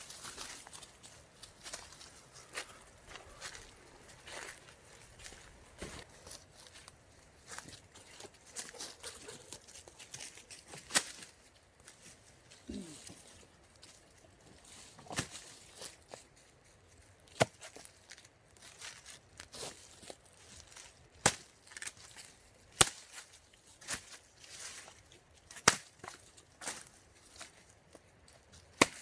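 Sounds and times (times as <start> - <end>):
firewood chopping cracks: 21.2 - 22.0, 22.8 - 23.2, 25.5 - 26.8, 28.7 - 29.0.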